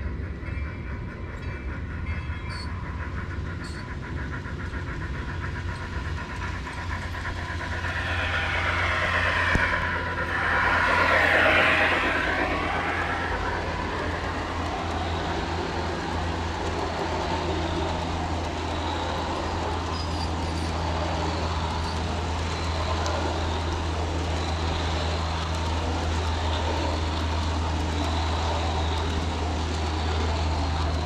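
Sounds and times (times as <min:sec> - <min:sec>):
model train hum and rumble: 0:00.0 - 0:31.0.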